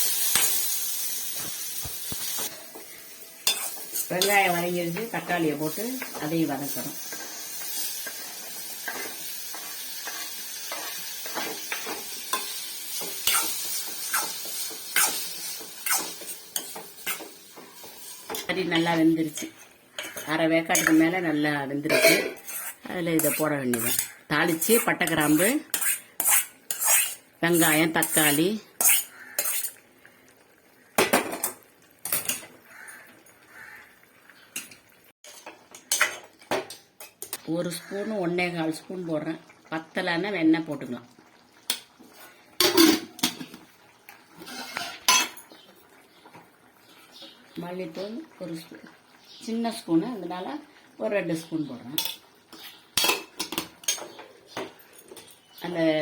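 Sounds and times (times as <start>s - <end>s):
vegetables sizzling in oil: 0.0s - 54.1s
metal spoon scraping a pot: 3.5s - 4.6s, 8.8s - 21.2s, 22.0s - 29.8s, 44.4s - 45.5s.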